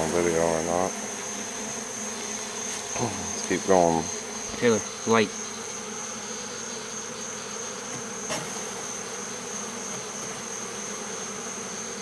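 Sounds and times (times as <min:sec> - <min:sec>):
bee swarm buzzing: 0:00.0 - 0:12.0.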